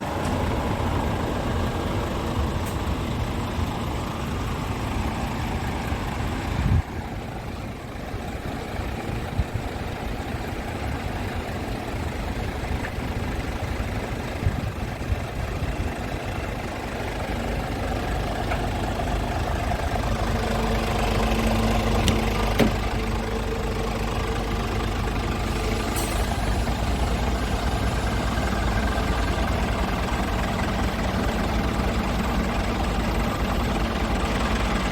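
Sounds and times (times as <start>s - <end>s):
truck diesel engine idling: 0.0s - 34.9s
thump: 22.0s - 22.8s.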